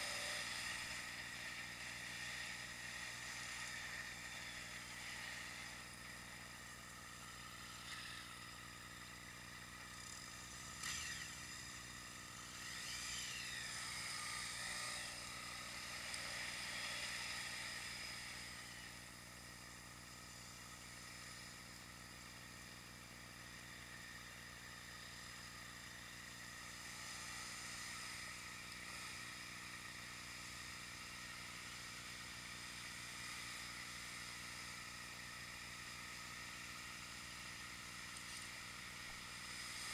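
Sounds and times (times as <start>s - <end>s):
electronic hum: 2.8s - 23.1s.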